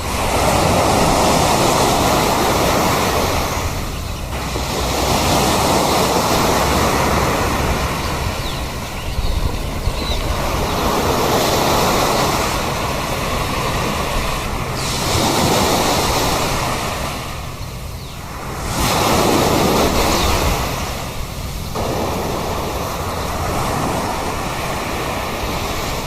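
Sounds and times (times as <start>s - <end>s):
sea surf washing ashore: 0.0s - 26.0s
faint high bird calls: 7.8s - 12.4s.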